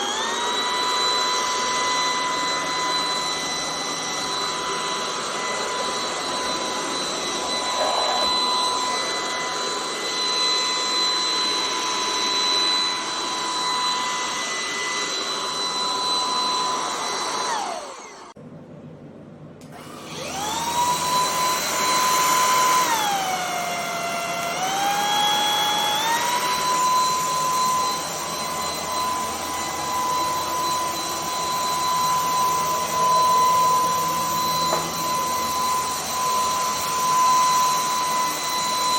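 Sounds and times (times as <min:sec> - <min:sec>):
stick vacuum motor whining: 0:00.0 - 0:18.4, 0:19.6 - 0:38.9.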